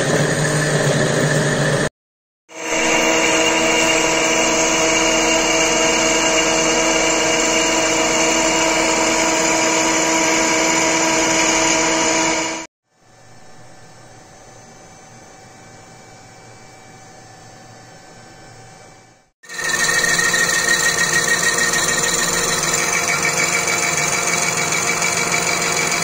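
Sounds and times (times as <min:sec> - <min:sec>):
lathe motor whining hum: 0:02.6 - 0:12.7, 0:19.5 - 0:26.0.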